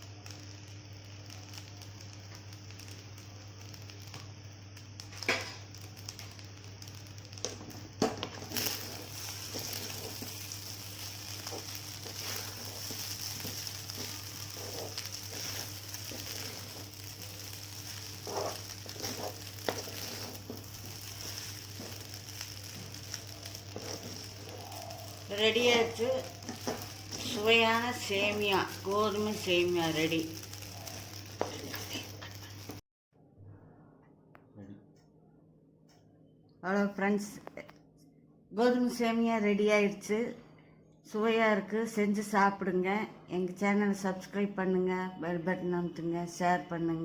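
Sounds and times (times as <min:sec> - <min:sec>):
food sizzling in a pan: 0:00.0 - 0:32.8
steady low hum: 0:00.0 - 0:38.6.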